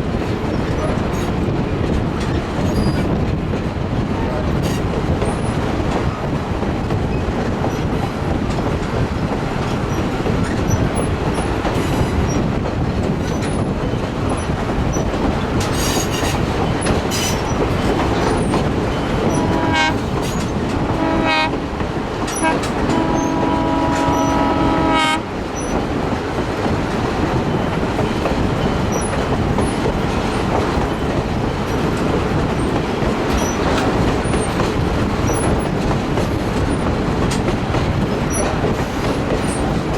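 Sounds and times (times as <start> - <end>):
train rumble and wheel clatter: 0.0 - 39.9
locomotive horn blasts: 19.3 - 20.0, 20.9 - 21.6, 22.4 - 25.3.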